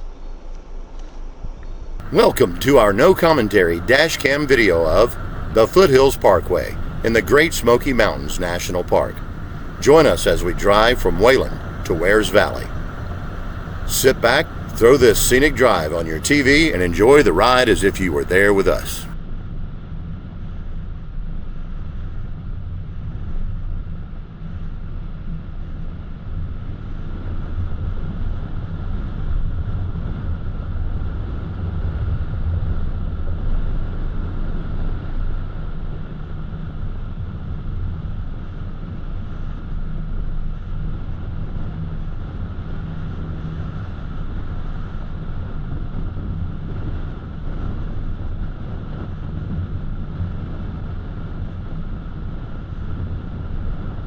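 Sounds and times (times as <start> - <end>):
road and engine rumble: 2.0 - 19.1
faint steady whine: 2.0 - 19.2
wind noise: 2.0 - 19.2.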